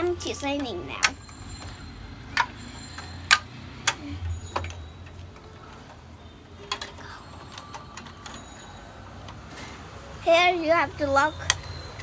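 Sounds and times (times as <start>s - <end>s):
toy clicks and taps: 0.2s - 5.5s, 11.4s - 11.8s.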